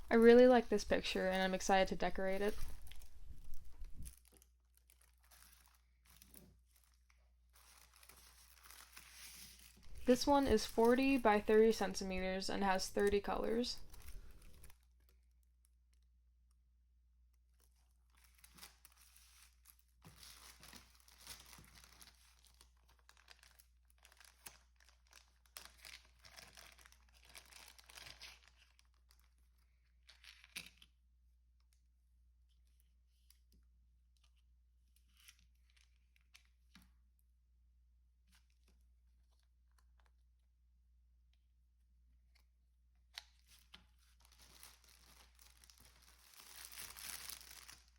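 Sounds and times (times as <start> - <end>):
plastic packaging crinkling: 0.0 - 15.4, 17.5 - 30.9, 43.3 - 47.9.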